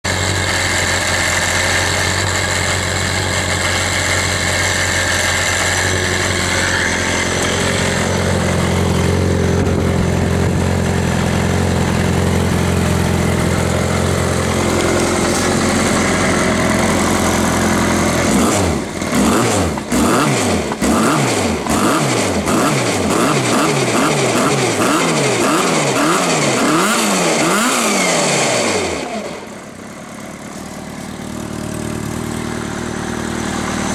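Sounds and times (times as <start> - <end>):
car engine idling: 0.1 - 20.9, 29.3 - 33.9
engine revving in throttle blips: 3.6 - 29.6.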